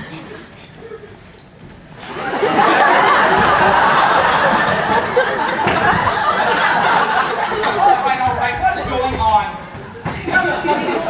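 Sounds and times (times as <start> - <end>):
audience laughing: 2.0 - 8.3, 10.0 - 11.0.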